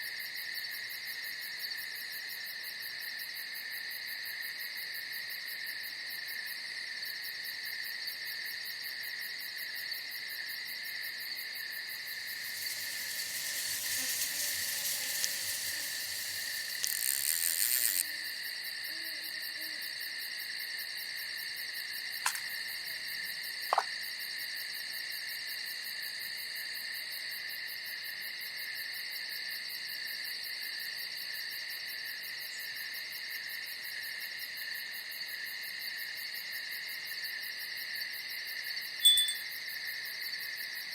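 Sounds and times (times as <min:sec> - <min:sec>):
insects trilling: 0:10.3 - 0:26.7
pulsing hiss: 0:12.0 - 0:18.4
sharp clicks: 0:22.3 - 0:22.6.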